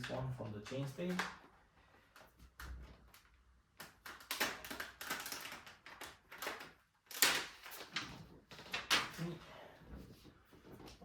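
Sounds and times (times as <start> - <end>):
packaging clicking and rustling: 2.1 - 9.3.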